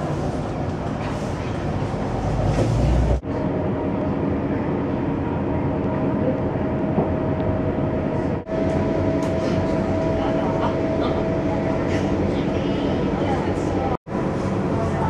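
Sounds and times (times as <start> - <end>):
train wheels rumbling on rails: 0.0 - 3.7.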